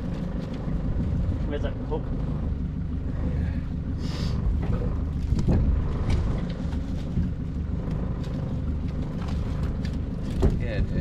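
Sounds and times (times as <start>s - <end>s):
boat motor running: 0.0s - 11.0s
wind buffeting microphone: 4.4s - 7.7s.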